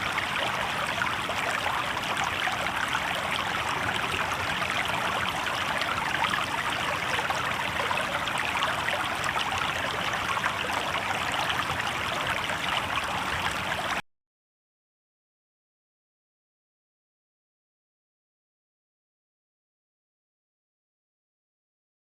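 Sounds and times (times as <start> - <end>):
river water babbling over rocks: 0.0 - 14.0.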